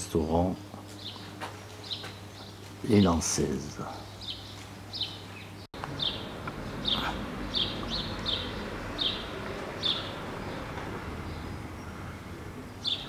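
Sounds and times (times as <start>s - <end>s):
faint outdoor background: 0.0s - 13.0s
small bird chirping: 4.0s - 13.0s.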